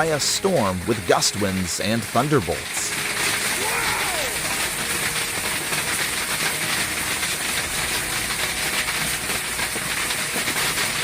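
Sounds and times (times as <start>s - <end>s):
hail and heavy rain pelting: 0.0s - 11.0s.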